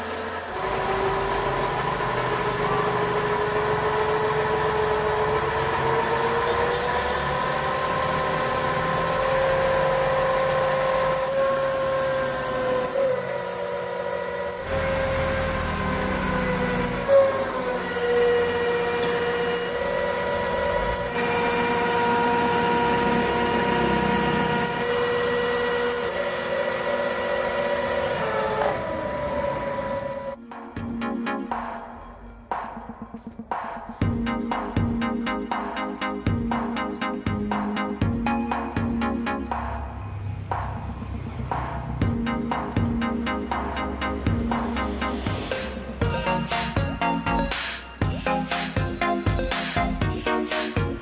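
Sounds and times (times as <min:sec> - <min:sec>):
model truck motor whining: 0:00.0 - 0:30.4.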